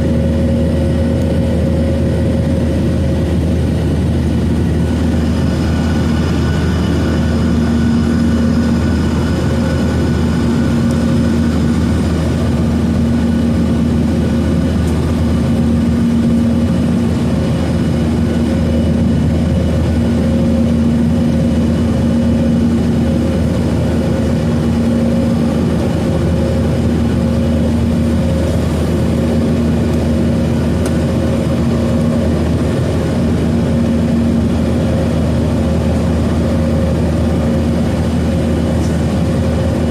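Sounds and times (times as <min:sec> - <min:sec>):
jet engine drone in cabin: 0:00.0 - 0:39.9.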